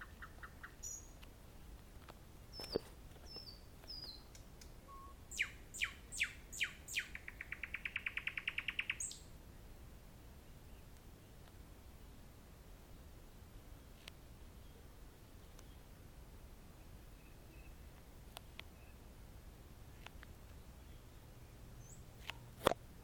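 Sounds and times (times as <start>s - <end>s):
nightingale singing: 0.0s - 1.2s, 2.5s - 9.3s, 16.6s - 19.1s.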